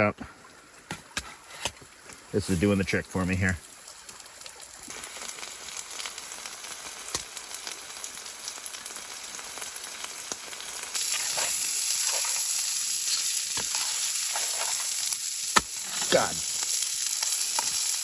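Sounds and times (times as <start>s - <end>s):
food sizzling in a pan: 2.4s - 2.9s, 3.6s - 18.0s
crackles and pops: 3.8s - 18.0s.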